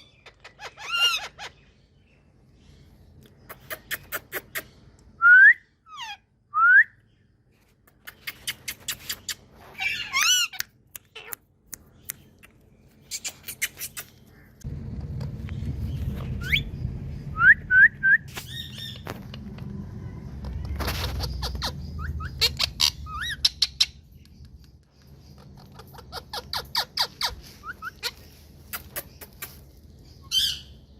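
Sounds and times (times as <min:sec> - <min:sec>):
parrot squawk: 0:00.1 - 0:01.6, 0:05.9 - 0:06.2, 0:09.7 - 0:11.4, 0:25.6 - 0:28.2
low steady rumble: 0:14.3 - 0:30.9
parrots whistling: 0:21.0 - 0:24.0, 0:25.6 - 0:28.2.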